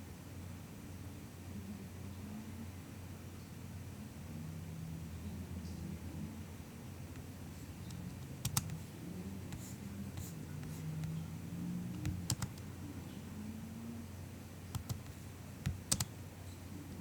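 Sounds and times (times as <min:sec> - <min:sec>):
faint low hum: 0:00.0 - 0:17.0
soft keyboard keystrokes: 0:07.2 - 0:08.8, 0:11.9 - 0:12.7, 0:14.7 - 0:16.1.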